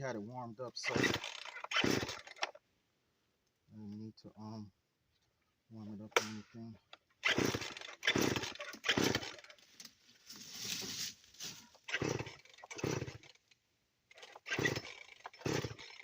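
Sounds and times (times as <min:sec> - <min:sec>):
chainsaw engine turning over: 0:00.8 - 0:02.6, 0:07.2 - 0:09.6, 0:11.7 - 0:16.0
chainsaw starter cord yanks: 0:00.8 - 0:02.6, 0:06.1 - 0:09.9, 0:11.7 - 0:16.0.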